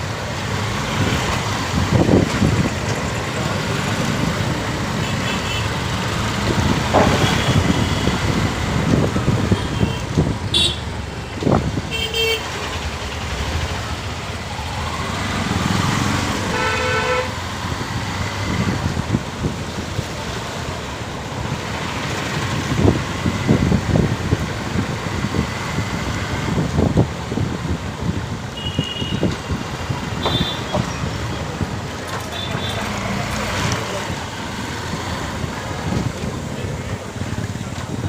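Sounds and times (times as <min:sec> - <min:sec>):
motorcycle road and wind noise: 0:00.0 - 0:38.0
vehicle horn honking: 0:09.6 - 0:10.8, 0:16.5 - 0:17.4.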